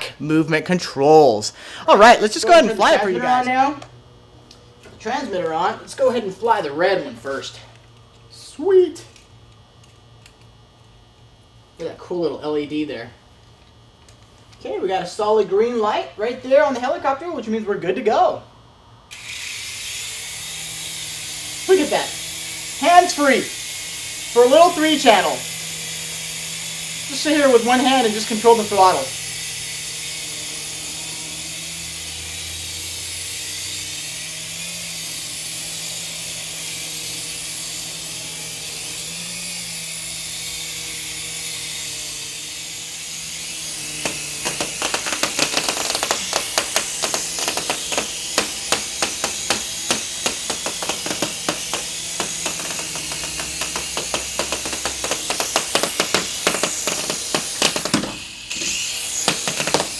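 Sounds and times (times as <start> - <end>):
rc helicopter whirring: 1.8 - 4.1, 19.1 - 59.9
rapid sharp clicks and taps: 44.0 - 58.2, 59.2 - 59.9.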